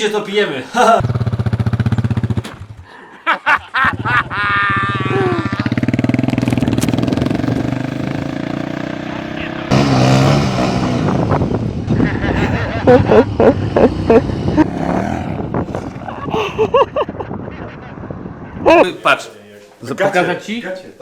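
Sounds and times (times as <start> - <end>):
motorcycle engine running: 1.0 - 2.7, 4.9 - 11.7.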